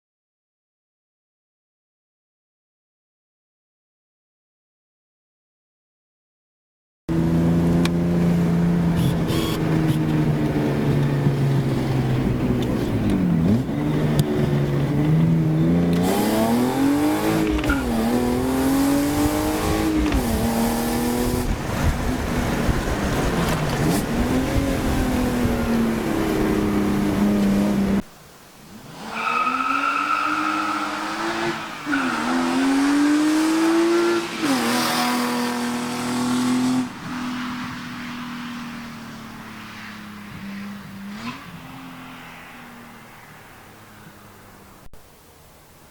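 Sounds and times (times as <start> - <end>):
car engine accelerating through gears: 7.1 - 28.0, 29.2 - 37.8.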